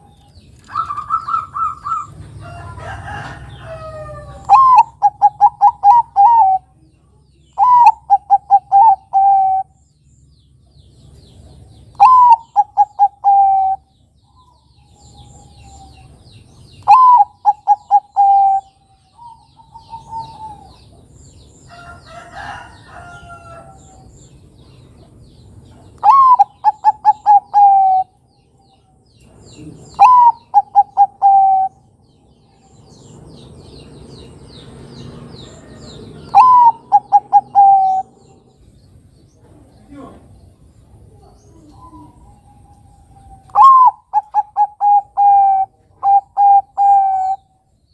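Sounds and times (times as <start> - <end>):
small birds chirping: 0.0 - 47.9
dove cooing: 0.7 - 2.2, 3.0 - 6.8, 7.6 - 9.8, 11.9 - 16.1, 16.8 - 21.0, 26.0 - 28.2, 29.5 - 31.8, 35.6 - 38.5, 41.0 - 47.5
rough bird call: 26.0 - 28.2, 35.3 - 38.6, 41.8 - 47.6.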